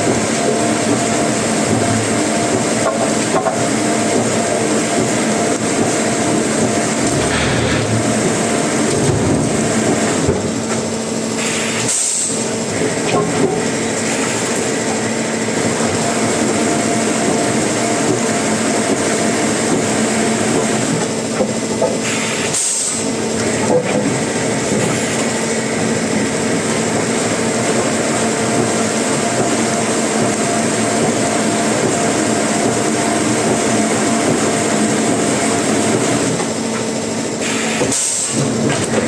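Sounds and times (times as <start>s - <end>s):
machine hum: 0.0s - 11.8s
wood-processing machinery clatter: 0.0s - 39.0s.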